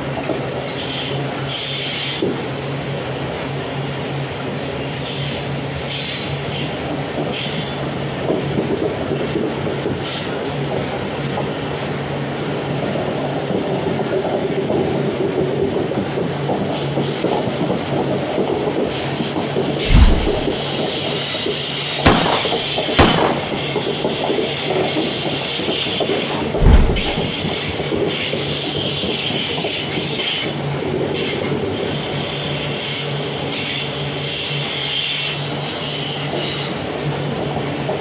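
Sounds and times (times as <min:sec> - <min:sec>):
low thumps: 0:19.9 - 0:20.7, 0:26.5 - 0:27.4
freight train wheels rumbling: 0:19.9 - 0:20.9, 0:26.2 - 0:27.6.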